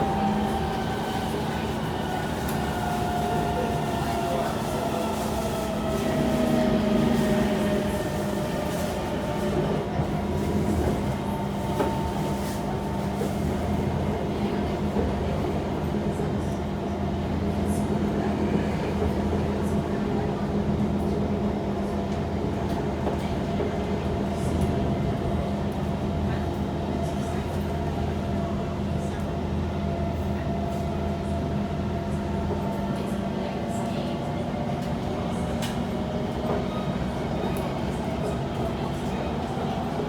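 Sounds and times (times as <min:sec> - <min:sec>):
train wheels rumbling: 0:00.0 - 0:15.6.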